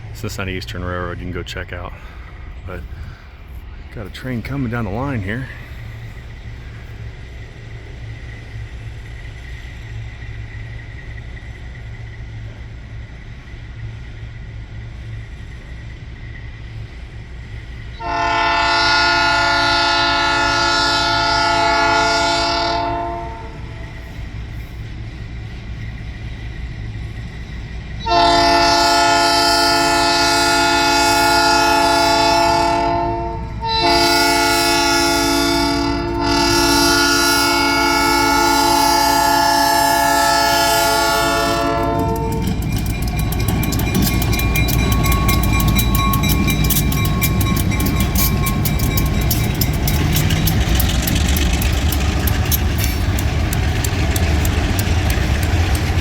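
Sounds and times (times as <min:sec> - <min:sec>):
locomotive engine rumbling: 0:00.0 - 0:56.0
train wheels clicking on rail joints: 0:00.0 - 0:56.0
locomotive air horn blasts: 0:18.0 - 0:23.9, 0:28.0 - 0:42.5.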